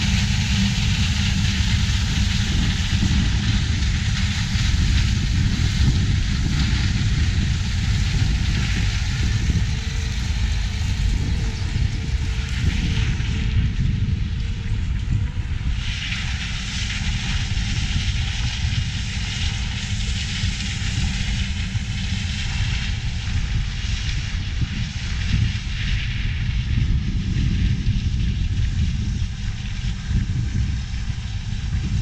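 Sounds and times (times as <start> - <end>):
farm machinery engine rumble: 0.0 - 32.0
hiss: 0.0 - 32.0.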